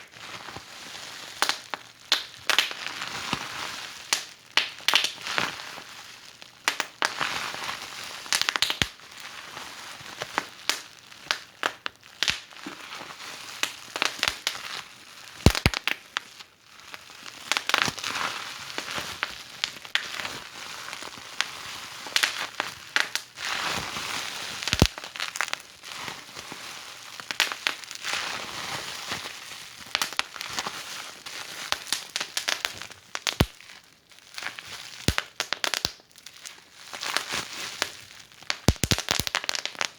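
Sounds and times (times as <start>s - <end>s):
logs crackling and popping: 1.4s - 2.8s, 8.3s - 8.9s, 10.4s - 12.5s, 15.4s - 16.0s, 24.6s - 25.6s, 27.3s - 27.9s, 29.9s - 30.4s, 31.7s - 33.7s, 34.5s - 39.9s.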